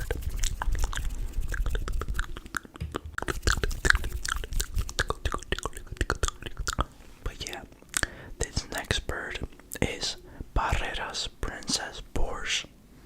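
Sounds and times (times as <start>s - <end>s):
wet mouth clicks and pops: 0.1s - 8.1s.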